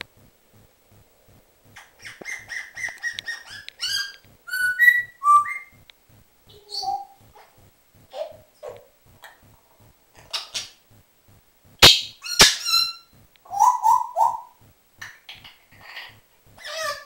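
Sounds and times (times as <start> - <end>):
parrot whistling and calling: 1.8 - 5.8, 6.5 - 7.5, 11.8 - 14.6.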